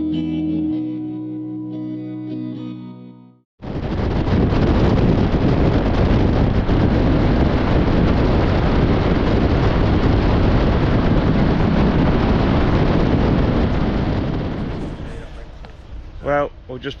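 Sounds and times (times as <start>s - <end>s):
wind rushing over helmet: 3.6s - 16.3s
road noise: 14.5s - 17.0s.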